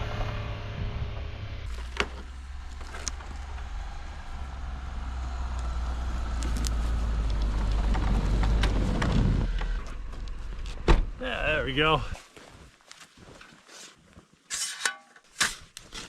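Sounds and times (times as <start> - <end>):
truck engine running: 0.0 - 10.6.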